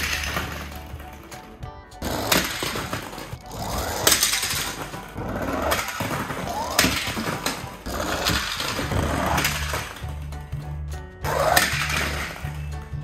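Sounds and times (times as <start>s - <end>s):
toy cars rolling whir: 0.0s - 10.6s, 11.2s - 13.0s
background music: 0.0s - 13.0s
toy cars clattering: 0.0s - 13.0s.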